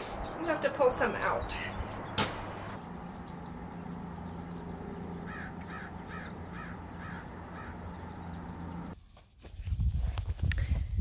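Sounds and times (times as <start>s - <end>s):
steady low hum: 0.1s - 9.0s.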